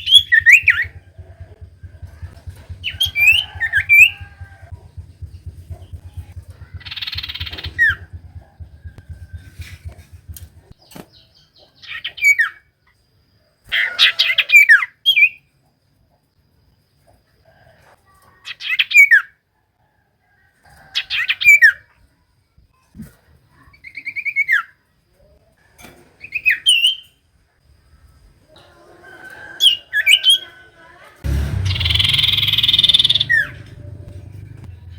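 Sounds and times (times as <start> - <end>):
bird singing rapid chirps: 0.0 - 10.8, 31.4 - 34.9.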